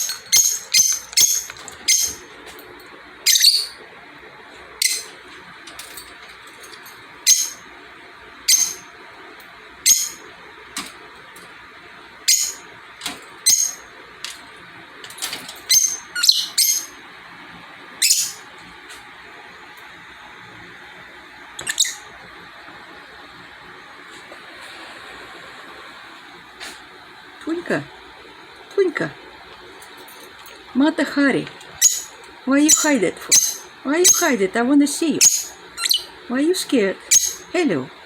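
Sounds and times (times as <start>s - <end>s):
lovebirds chirping: 0.0s - 2.3s, 3.2s - 3.8s, 8.5s - 8.9s, 15.7s - 17.0s, 18.0s - 18.4s, 31.8s - 34.5s, 35.1s - 36.2s, 37.1s - 37.5s.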